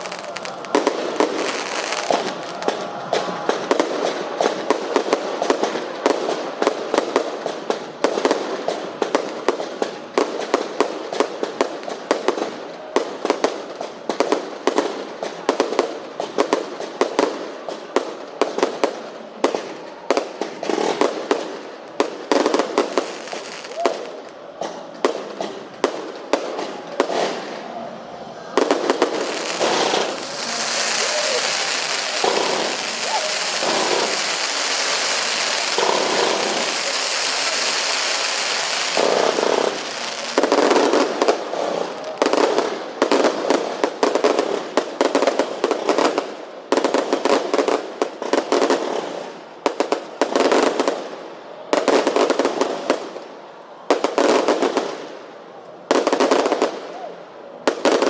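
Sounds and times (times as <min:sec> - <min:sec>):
fireworks hissing: 0:00.0 - 0:05.6, 0:28.6 - 0:46.4
fireworks bangs: 0:00.0 - 0:58.0.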